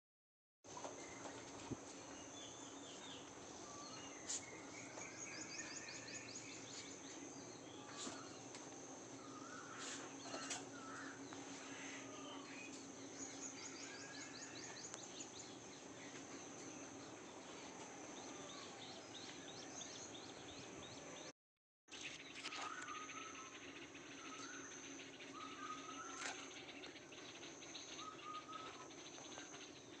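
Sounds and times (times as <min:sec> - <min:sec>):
birds chirping: 0:00.7 - 0:21.3, 0:21.9 - 0:30.0.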